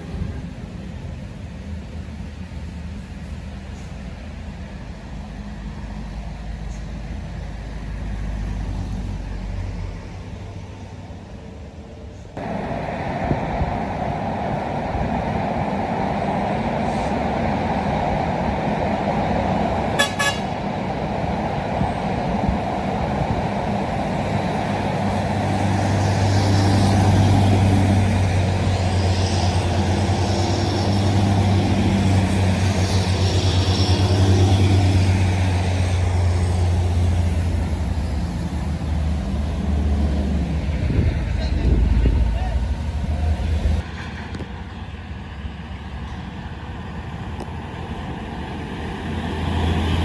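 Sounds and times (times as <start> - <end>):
truck traffic rumbling: 0.0 - 50.0
short horn toot: 20.0 - 20.5
truck engine droning by: 22.6 - 50.0.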